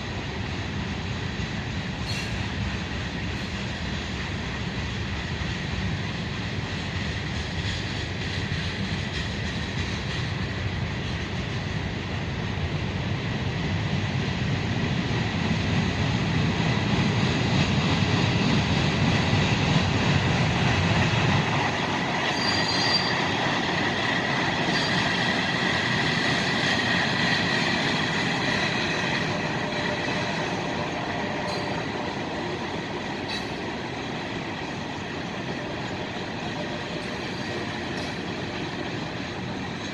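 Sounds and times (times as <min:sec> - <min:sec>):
freight train rumbling past: 0:00.0 - 0:39.9
steel wheels squealing on rail: 0:01.8 - 0:11.9, 0:20.4 - 0:39.9.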